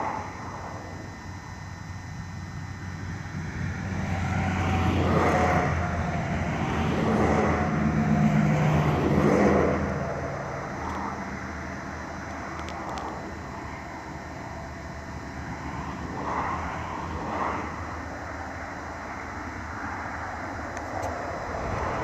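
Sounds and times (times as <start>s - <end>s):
passing engine hum: 0.0s - 22.0s.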